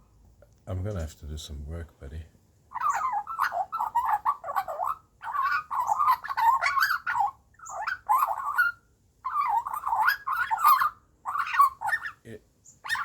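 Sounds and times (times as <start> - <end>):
magpie warbling call: 2.7 - 13.0.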